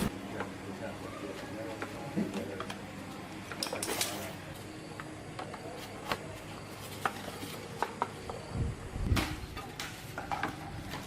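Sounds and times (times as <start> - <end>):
tools and metal parts clicking: 3.5 - 4.3.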